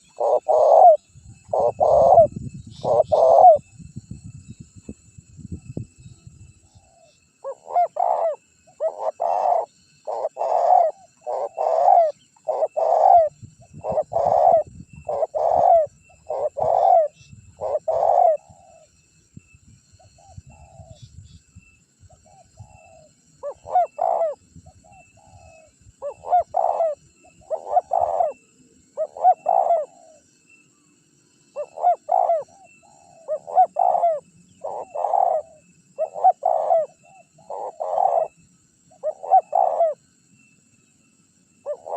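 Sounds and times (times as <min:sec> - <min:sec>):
dove cooing: 0:00.0 - 0:03.7, 0:06.7 - 0:18.9, 0:22.2 - 0:30.2, 0:31.6 - 0:40.0, 0:41.6 - 0:41.9.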